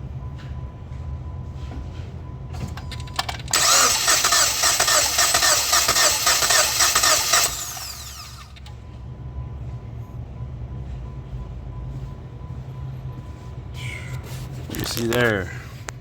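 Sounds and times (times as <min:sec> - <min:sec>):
starter cranking engine: 0:02.8 - 0:08.8.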